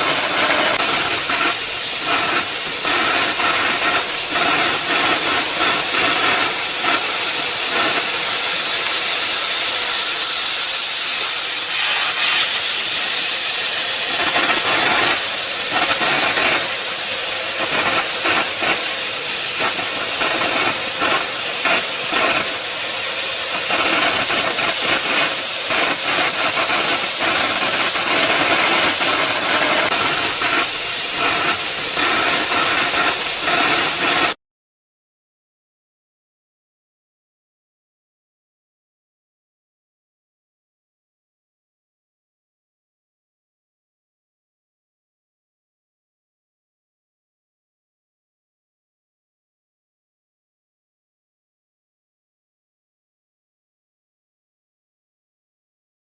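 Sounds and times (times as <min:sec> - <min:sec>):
cutting torch hissing: 0:00.0 - 0:34.4.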